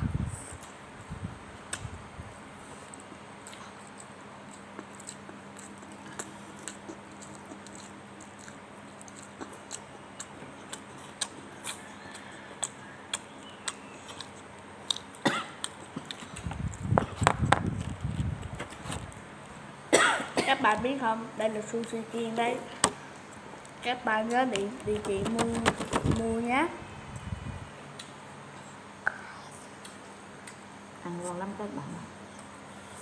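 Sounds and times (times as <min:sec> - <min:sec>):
person chewing: 0:02.8 - 0:19.2.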